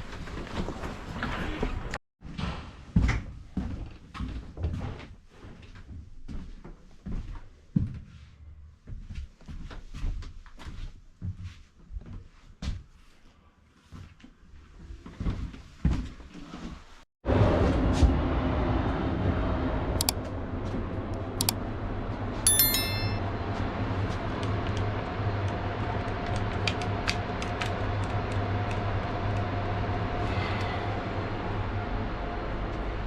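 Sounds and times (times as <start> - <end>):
brief high ringing tone: 22.5 - 23.2.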